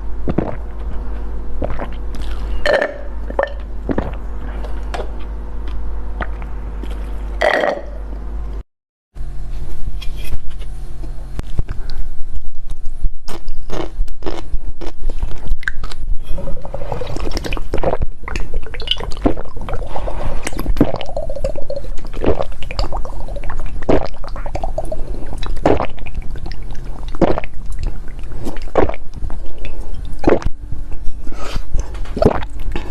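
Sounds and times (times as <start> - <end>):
wet squishy chewing: 17.0 - 32.9.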